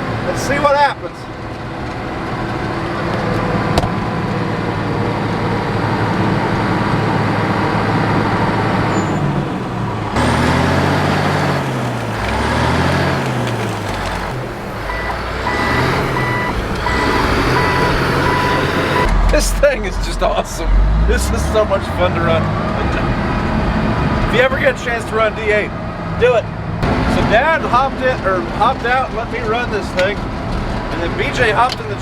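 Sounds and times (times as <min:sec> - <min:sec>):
bulldozer diesel engine under load: 0:00.0 - 0:32.0
backup alarm beeping: 0:14.8 - 0:19.5.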